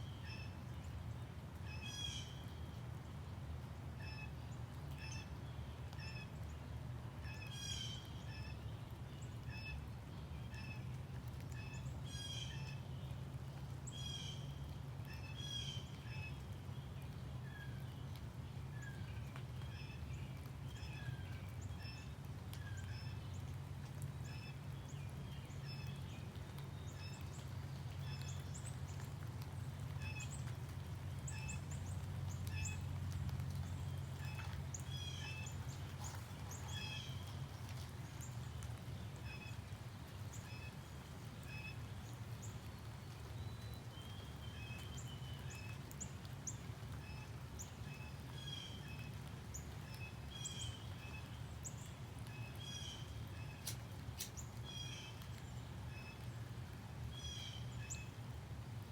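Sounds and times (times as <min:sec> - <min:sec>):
small birds chirping: 0:10.4 - 0:56.5.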